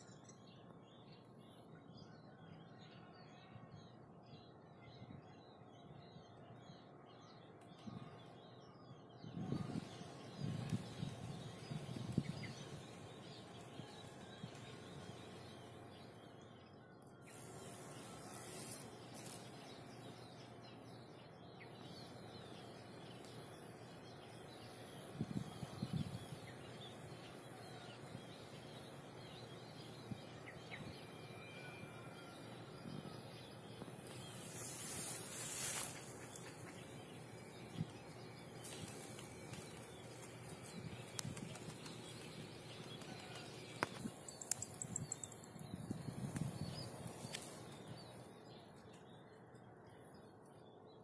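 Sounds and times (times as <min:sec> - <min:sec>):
bird chirps: 0:04.5 - 0:51.0
insect hiss: 0:17.2 - 0:20.1, 0:33.8 - 0:42.1.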